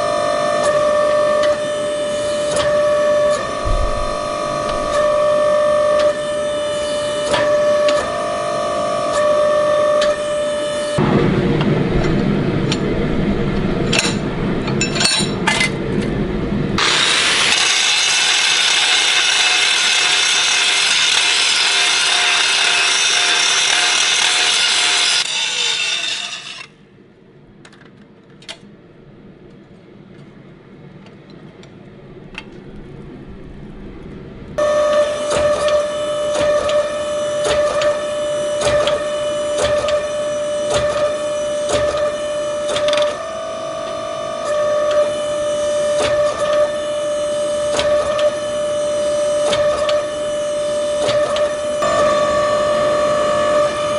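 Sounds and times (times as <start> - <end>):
machine humming and ticking: 0.0 - 53.9
low rumble with clicks: 3.4 - 5.4, 11.0 - 16.8, 27.4 - 34.6
power tool grinding steel: 3.4 - 5.5, 16.8 - 26.7.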